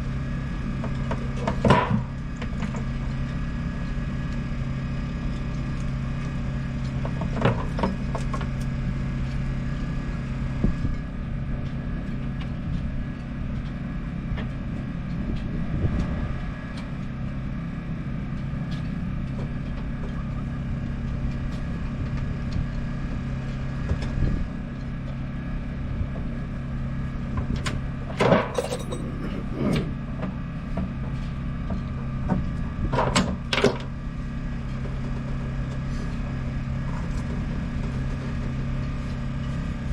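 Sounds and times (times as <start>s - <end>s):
hard objects clanking and rattling: 28.2s - 30.1s.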